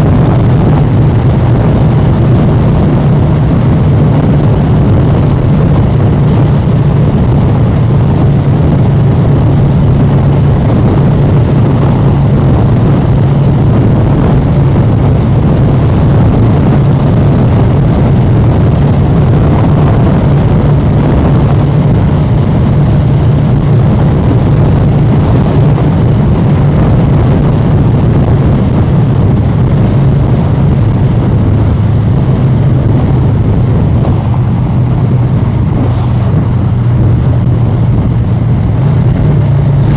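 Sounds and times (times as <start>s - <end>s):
motorcycle engine running loud: 0.0s - 39.9s.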